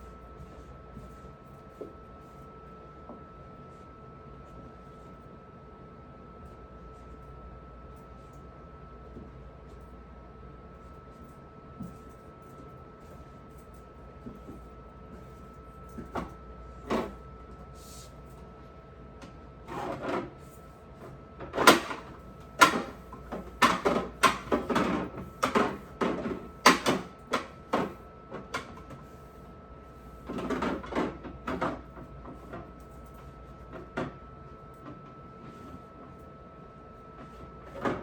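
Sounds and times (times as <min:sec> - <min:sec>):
plastic drawers knocking and clattering: 0:21.5 - 0:27.9.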